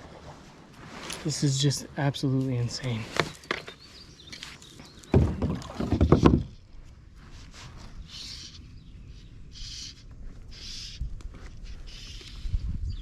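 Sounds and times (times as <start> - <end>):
paddle splashing water: 5.1 - 6.2.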